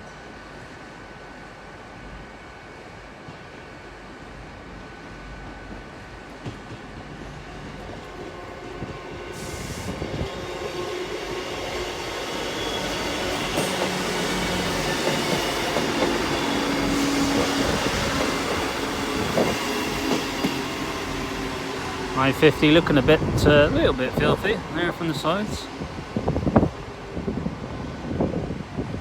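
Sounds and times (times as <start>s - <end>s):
diesel train engine: 0.0s - 29.0s
train wheels on rails: 2.6s - 29.0s.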